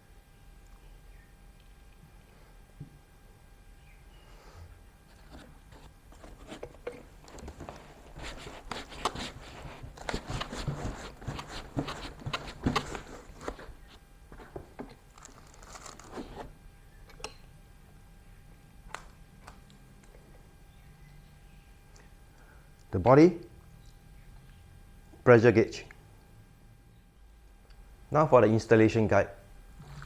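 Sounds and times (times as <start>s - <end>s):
packaging wrapping crinkling: 5.1s - 16.5s.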